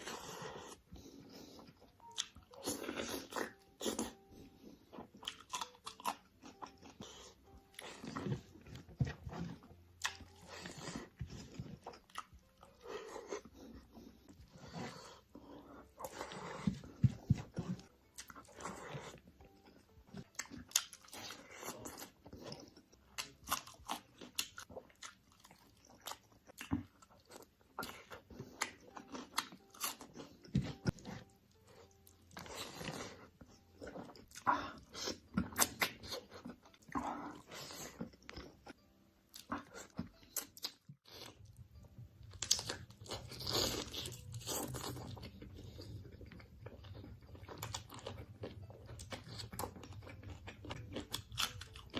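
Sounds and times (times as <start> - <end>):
dog chewing crunchy food: 42.4 - 51.9.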